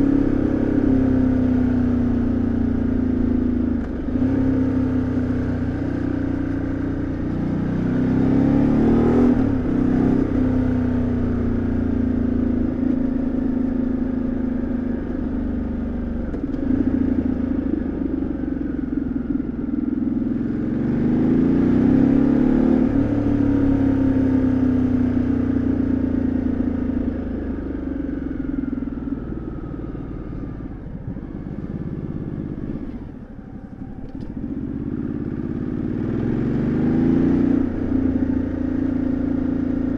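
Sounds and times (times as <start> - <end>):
motorcycle engine and exhaust: 0.0 - 39.9
gear change: 30.3 - 36.3.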